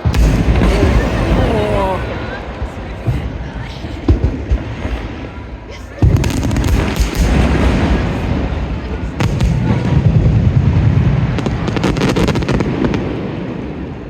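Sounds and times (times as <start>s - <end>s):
sharp firework bang: 0.0s - 2.3s
firework crackles: 0.0s - 14.0s
fireworks booming: 0.0s - 14.0s.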